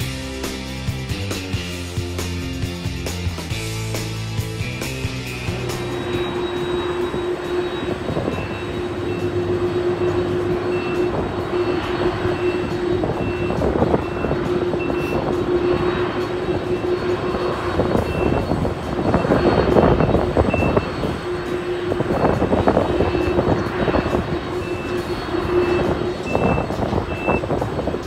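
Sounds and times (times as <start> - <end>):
jet engines whining: 0.0 - 28.0
faint short beep: 25.7 - 27.4.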